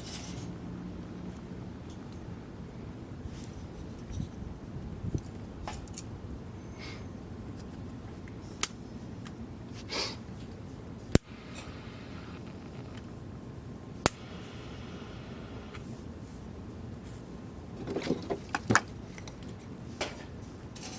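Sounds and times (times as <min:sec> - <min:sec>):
low background noise: 0:00.0 - 0:20.9
sharp short clicks: 0:14.0 - 0:15.8.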